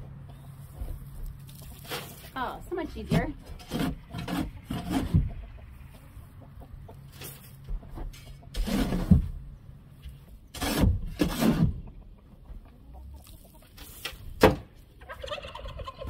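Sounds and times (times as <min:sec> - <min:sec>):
shovel scraping floor: 0:01.7 - 0:02.4, 0:08.5 - 0:09.3, 0:10.5 - 0:11.7.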